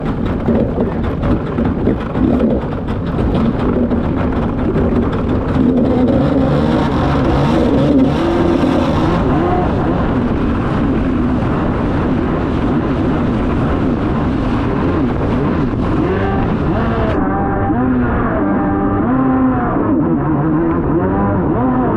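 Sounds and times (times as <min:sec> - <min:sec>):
hull slapping water: 0:00.0 - 0:17.6
water rushing: 0:00.0 - 0:19.9
jet ski engine running: 0:00.0 - 0:21.9.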